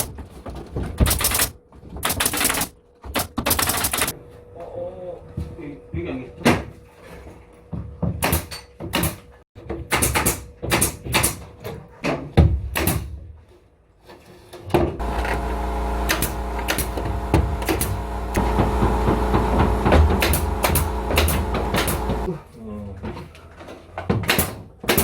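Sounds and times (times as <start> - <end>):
motor humming: 15.0 - 22.3.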